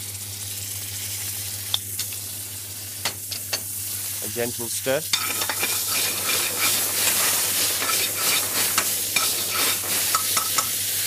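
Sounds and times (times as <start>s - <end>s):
food sizzling in hot oil: 0.0s - 11.0s
metal ladle scraping pan: 5.2s - 10.6s.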